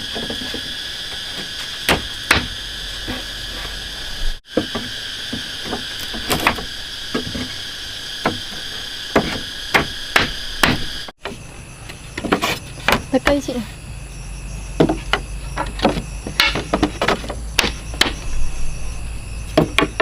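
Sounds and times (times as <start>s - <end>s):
high insect drone: 0.0s - 20.0s
hand tool striking wood: 1.8s - 3.2s, 8.2s - 11.0s, 14.8s - 18.2s, 19.6s - 20.0s.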